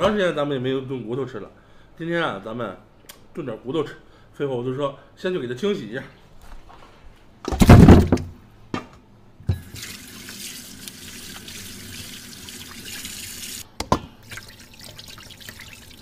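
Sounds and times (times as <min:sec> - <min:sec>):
loud clattering thump: 0:07.5 - 0:08.3.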